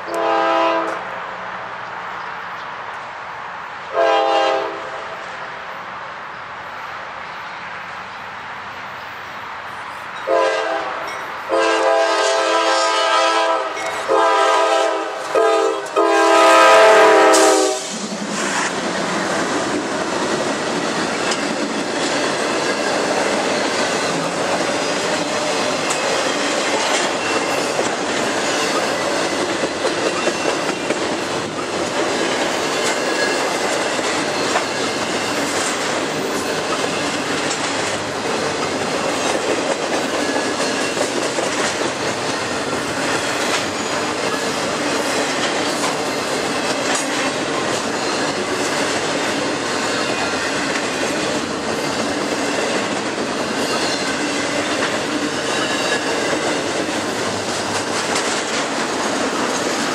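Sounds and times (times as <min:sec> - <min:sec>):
locomotive air horn blasts: 0:00.1 - 0:01.0, 0:03.9 - 0:05.1, 0:10.3 - 0:17.9
freight cars rumbling and clacking: 0:17.8 - 0:59.9.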